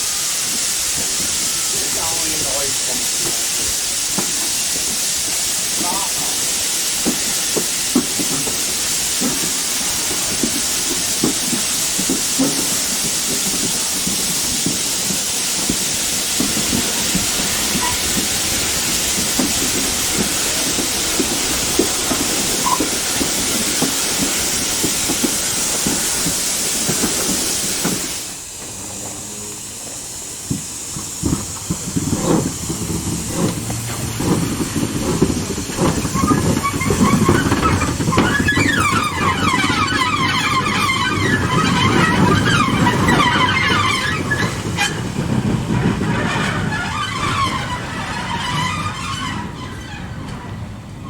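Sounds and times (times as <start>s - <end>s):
steam locomotive hissing: 0.0s - 51.0s
train rumbling: 0.0s - 51.0s
wavering high squeal: 36.2s - 45.0s.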